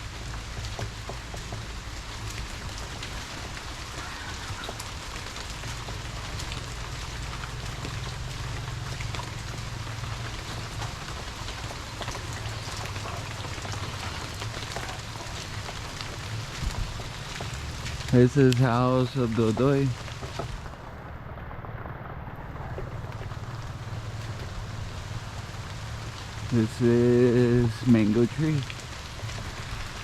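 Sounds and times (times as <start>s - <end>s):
rain falling: 0.0s - 30.0s
raindrops ticking near microphone: 0.0s - 30.0s
low rumble: 5.4s - 26.4s.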